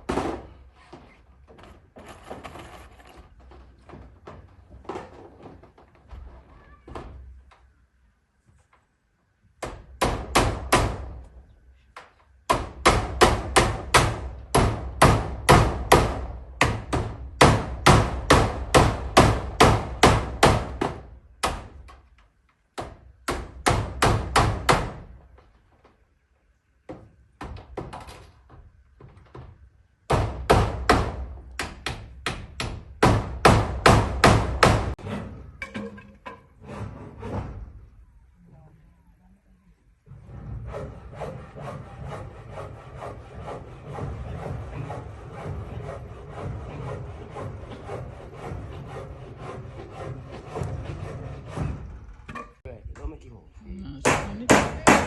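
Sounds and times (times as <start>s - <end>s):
hammer nailing metal roofing: 0.0s - 5.8s, 9.6s - 11.4s, 12.4s - 25.6s, 26.9s - 37.8s, 40.1s - 52.6s, 54.0s - 55.0s.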